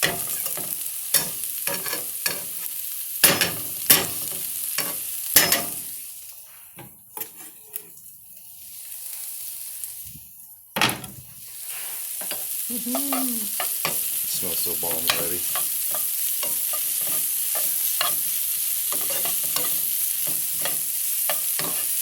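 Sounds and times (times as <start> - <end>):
onions sizzling in frying pan: 0.0 - 22.0
utensil scraping pan: 7.2 - 8.0, 15.0 - 22.0.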